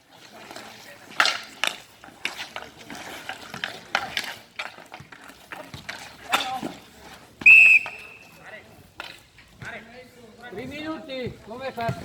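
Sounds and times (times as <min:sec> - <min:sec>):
skate blades scraping on ice: 0:00.0 - 0:09.3
sticks and puck clacking: 0:00.0 - 0:09.8.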